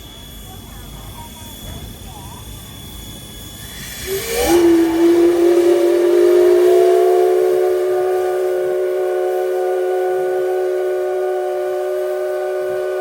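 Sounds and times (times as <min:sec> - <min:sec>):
steam locomotive whistle blast: 0:03.2 - 0:13.0.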